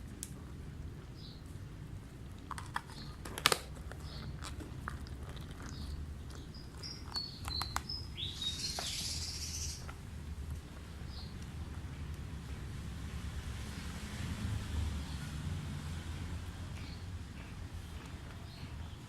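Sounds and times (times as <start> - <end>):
small birds chirping: 1.1 - 1.8, 2.8 - 3.2, 4.0 - 10.1, 10.8 - 12.6, 16.8 - 19.0
sharp clicks: 6.8 - 8.0.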